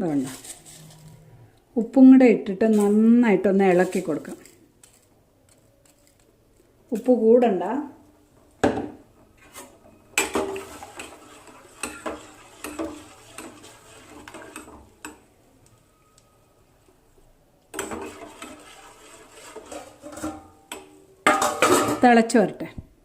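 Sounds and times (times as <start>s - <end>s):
spoon scraping and clinking pot: 9.4s - 15.2s, 17.7s - 22.0s.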